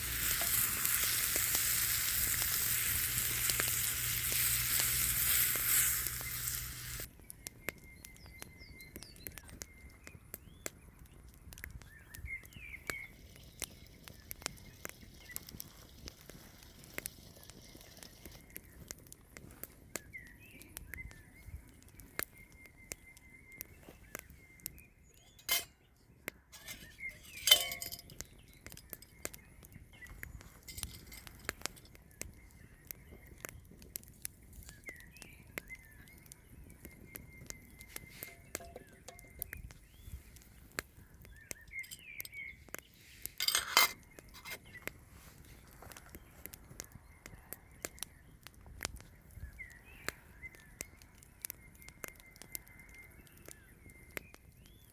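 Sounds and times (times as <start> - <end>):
camp dishes clinking: 0.0 - 7.1, 25.2 - 25.9, 26.5 - 28.2, 38.2 - 39.3, 43.4 - 44.8
small crackling clicks: 0.0 - 54.9.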